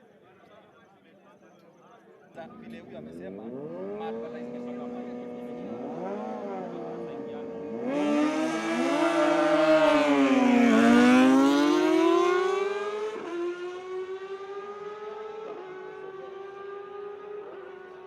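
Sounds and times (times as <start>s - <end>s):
motorbike engine running loud: 2.5s - 12.3s.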